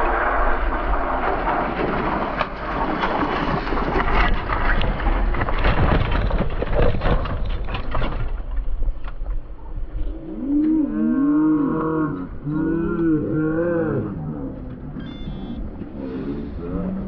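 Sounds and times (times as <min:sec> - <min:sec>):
wind buffeting microphone: 0:00.0 - 0:10.6
low rumble: 0:00.0 - 0:17.0
knocks and rattles: 0:00.9 - 0:09.6.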